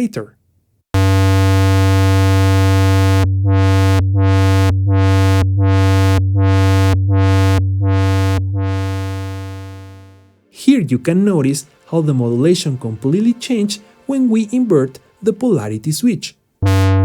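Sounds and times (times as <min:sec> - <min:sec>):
synthesizer low note sweeping: 0:01.0 - 0:10.6, 0:16.6 - 0:17.0.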